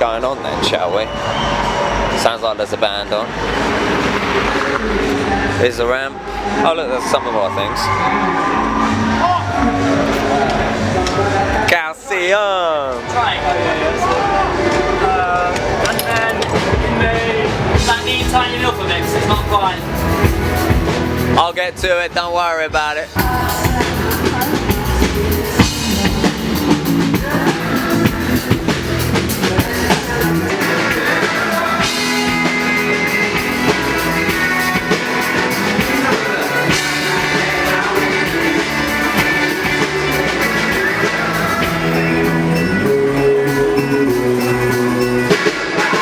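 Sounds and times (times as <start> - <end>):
rock music with singing: 0.0 - 12.1, 12.8 - 46.0.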